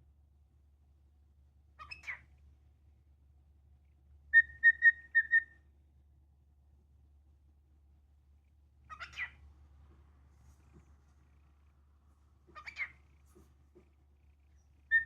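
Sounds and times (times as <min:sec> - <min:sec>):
cockatiel scratchy chirp: 0:01.8 - 0:02.2, 0:08.9 - 0:09.4, 0:12.5 - 0:13.5, 0:14.3 - 0:15.0.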